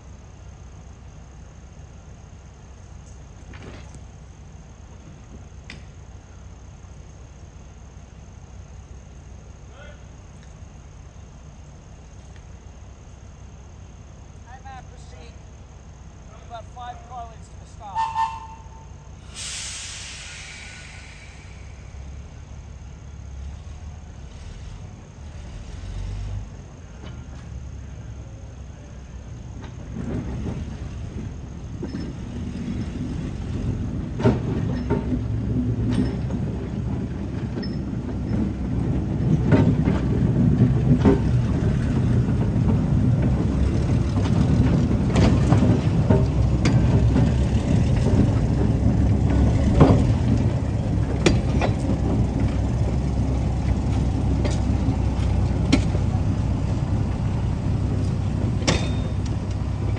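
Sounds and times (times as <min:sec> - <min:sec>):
wheels rumbling on rail: 0:00.0 - 0:59.9
sharp clanks and clicks: 0:34.2 - 0:52.6, 0:58.0 - 0:59.9.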